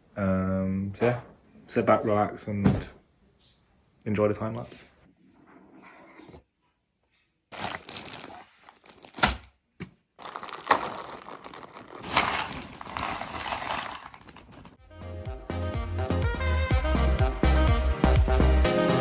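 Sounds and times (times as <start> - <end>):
packaging crinkling and rustling: 7.5 - 9.6, 10.2 - 14.8.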